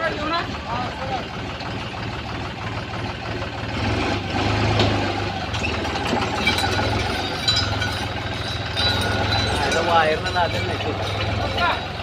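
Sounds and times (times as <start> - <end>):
tractor engine throbbing: 0.0 - 12.0.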